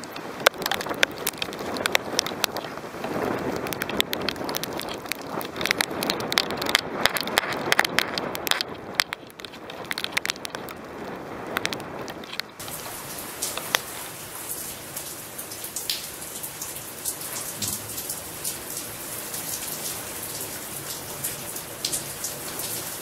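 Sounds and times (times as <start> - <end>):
gusting wind: 0.0 - 23.0
rain: 0.0 - 23.0
raindrops ticking on microphone: 0.0 - 23.0.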